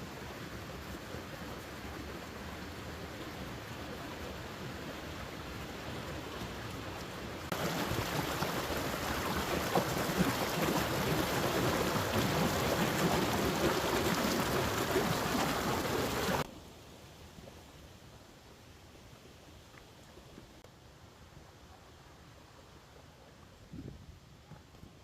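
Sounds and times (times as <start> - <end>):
waterfall rushing water: 0.2 - 16.5.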